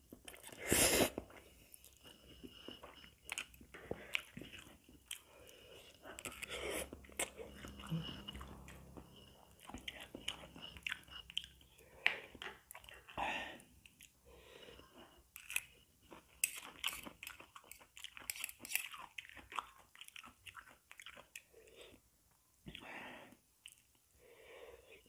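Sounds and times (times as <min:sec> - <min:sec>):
person chewing noodles: 0:00.0 - 0:22.1, 0:22.7 - 0:24.2.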